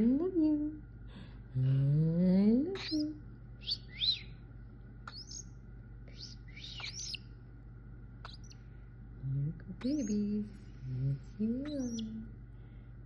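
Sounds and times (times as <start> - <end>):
young bird chirping: 2.8 - 4.4, 5.1 - 7.4, 8.2 - 8.6, 9.8 - 10.4, 11.6 - 12.2.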